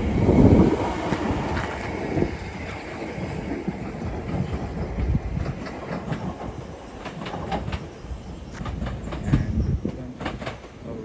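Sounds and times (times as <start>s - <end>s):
train rumbling along track: 0.0s - 11.0s
wheel clicks over rail joints: 4.0s - 11.0s.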